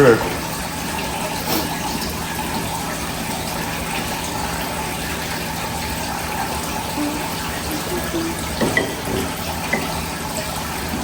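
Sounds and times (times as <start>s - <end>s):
water rushing through pump: 0.0s - 11.0s.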